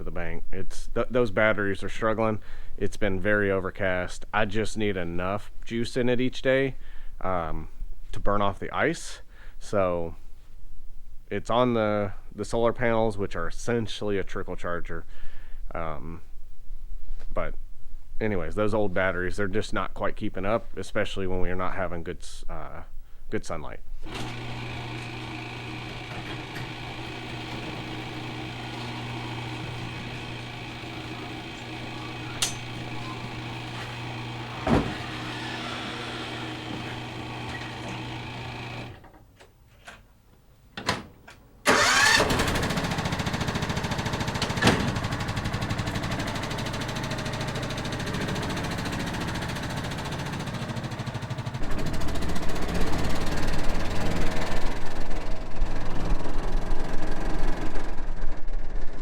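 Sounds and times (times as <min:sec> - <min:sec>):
engine running: 0:24.0 - 0:39.0, 0:41.7 - 0:59.0
engine starting: 0:24.0 - 0:39.0, 0:41.6 - 0:59.0
sharp clicks: 0:32.4 - 0:32.8.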